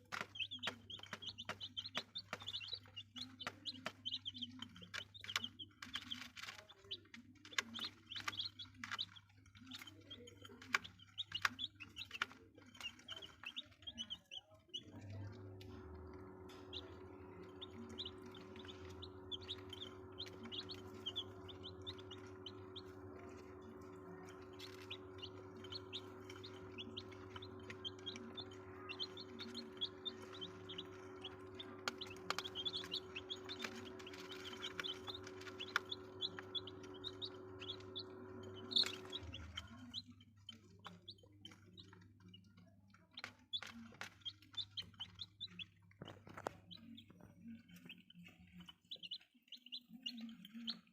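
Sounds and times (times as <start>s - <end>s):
chicks peeping: 0.0s - 50.9s
steady low hum: 14.8s - 40.0s.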